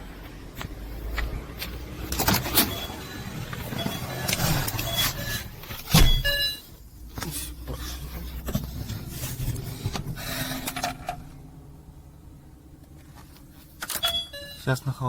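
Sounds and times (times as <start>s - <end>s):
engine knocks and clicks: 0.0s - 6.4s
car engine idling: 0.0s - 13.8s.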